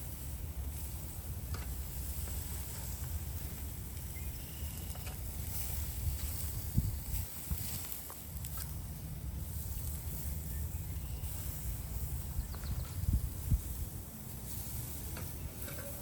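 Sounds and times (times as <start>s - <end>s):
small crackles: 1.5s - 8.9s, 9.5s - 10.5s
meat sizzling on a grill: 13.1s - 16.0s.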